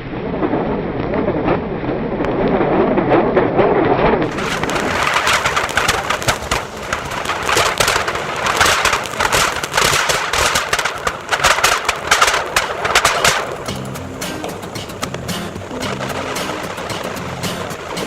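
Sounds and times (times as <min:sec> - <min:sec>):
fountain firecracker crackling hiss: 0:04.2 - 0:18.0.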